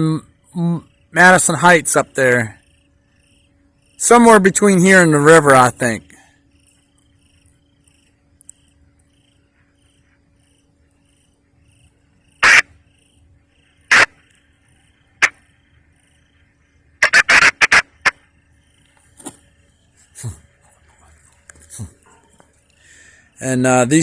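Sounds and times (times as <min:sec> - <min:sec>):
faint insect chirping: 0:00.0 - 0:24.0
low steady hum: 0:00.0 - 0:24.0
harsh bird calls: 0:12.4 - 0:12.7, 0:13.9 - 0:14.3, 0:17.0 - 0:18.2.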